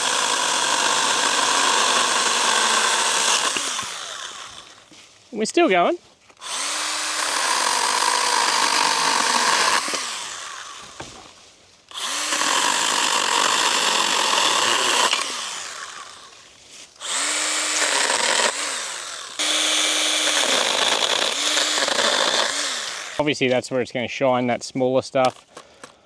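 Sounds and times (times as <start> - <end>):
battery mini chainsaw cutting branch: 0.0 - 4.9, 6.4 - 11.3, 11.9 - 23.3.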